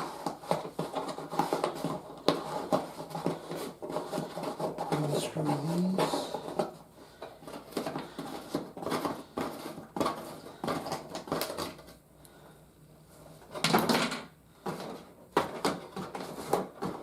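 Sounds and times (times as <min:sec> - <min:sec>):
cardboard packaging rustling: 0:00.0 - 0:12.0
plastic parts clicking and knocking: 0:06.4 - 0:12.0, 0:13.5 - 0:17.0.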